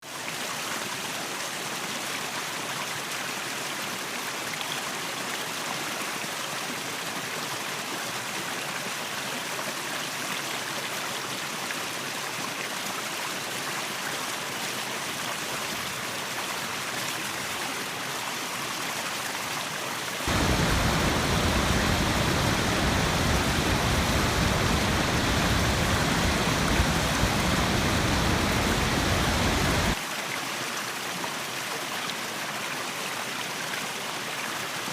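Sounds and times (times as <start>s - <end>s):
waterfall rushing: 20.2s - 30.0s.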